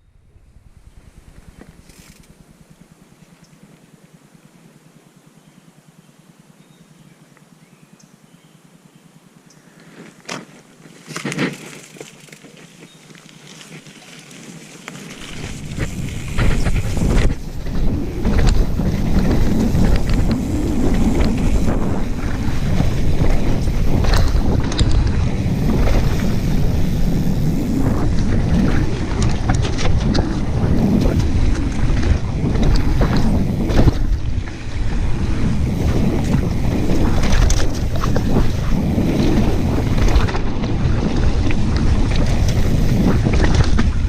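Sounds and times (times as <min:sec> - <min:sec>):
bike clicks and rattles: 0:01.2 - 0:02.4, 0:09.8 - 0:44.0
wind rushing over microphone: 0:15.2 - 0:44.0.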